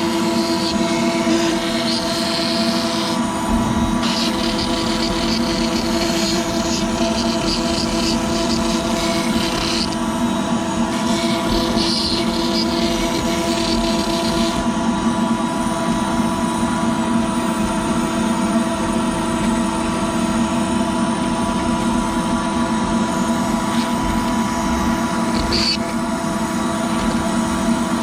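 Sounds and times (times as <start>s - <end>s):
router spindle whine: 0.0s - 28.0s.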